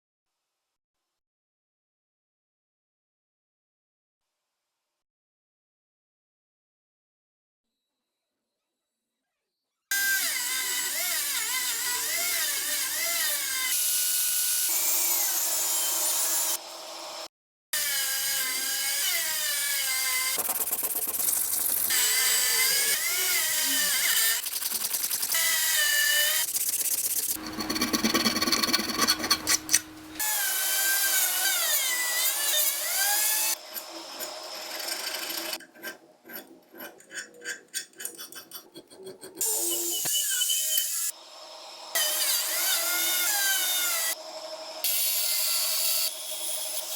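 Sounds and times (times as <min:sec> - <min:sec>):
small electric power tool whirring: 0:09.9 - 0:35.6, 0:39.4 - 0:46.9
quick rubbing or scraping strokes: 0:20.4 - 0:22.0, 0:24.2 - 0:29.7.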